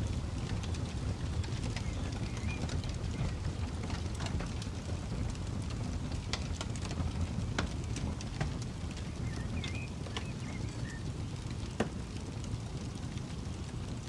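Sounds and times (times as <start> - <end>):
campfire crackling and popping: 0.0 - 14.0
faint bird chirps: 9.2 - 11.1.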